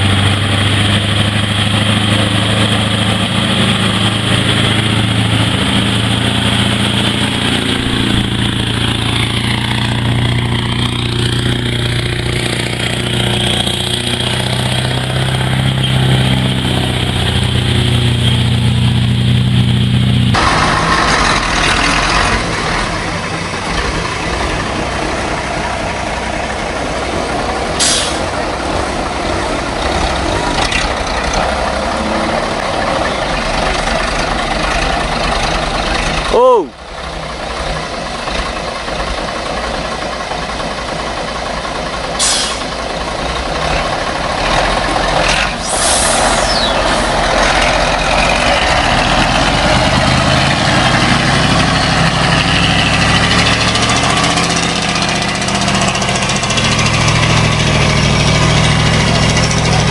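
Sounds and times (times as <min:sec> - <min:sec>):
road noise: 0:00.0 - 0:59.9
truck diesel engine running: 0:00.0 - 0:59.9
air brake hiss: 0:27.8 - 0:28.3, 0:42.2 - 0:42.7, 0:45.6 - 0:46.6.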